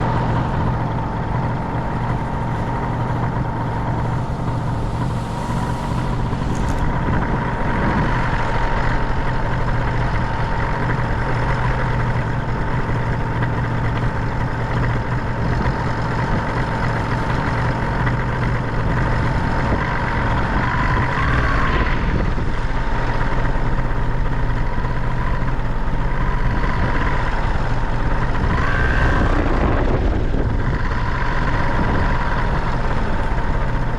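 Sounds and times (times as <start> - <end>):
paramotor engine and propeller: 0.0 - 33.9
rushing wind: 0.0 - 33.9.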